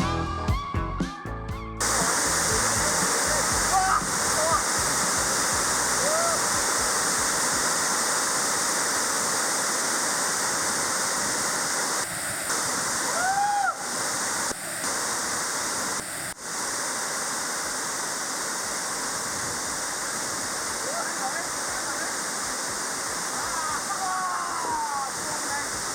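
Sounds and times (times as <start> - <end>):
waterfall roaring: 1.8 - 25.9
whistle-like call: 1.9 - 6.6.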